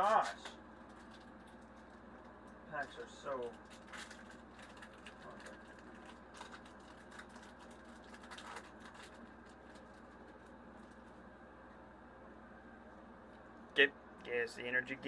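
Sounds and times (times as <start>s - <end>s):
foil pack crinkling and rustling: 0.1s - 2.0s, 2.8s - 11.2s.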